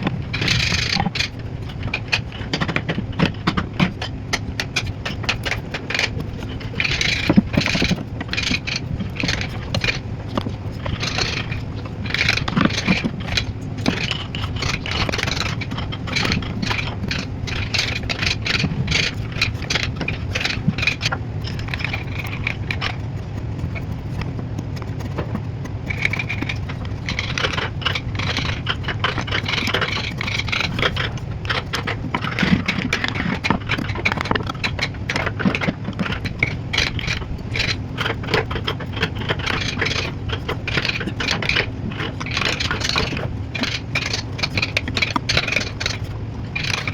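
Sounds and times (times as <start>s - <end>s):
carving tools scraping wood: 0.0s - 46.9s
steady low hum: 0.0s - 46.9s.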